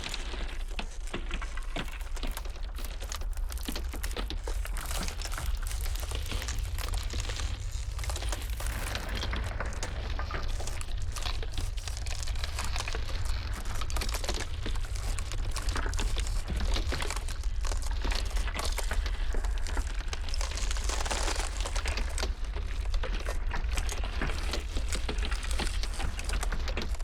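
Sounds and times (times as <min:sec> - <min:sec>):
ice cracking and crackling: 0:00.0 - 0:27.0
low wind rumble: 0:03.3 - 0:27.0.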